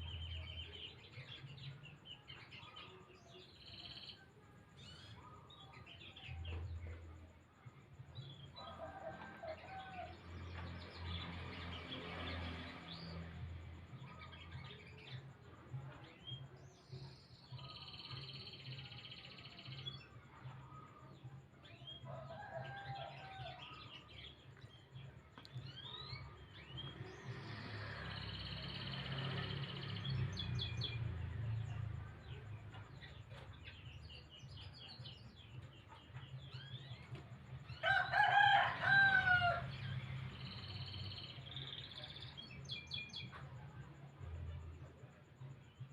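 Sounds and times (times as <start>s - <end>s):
canary singing trills: 16.0s - 20.9s.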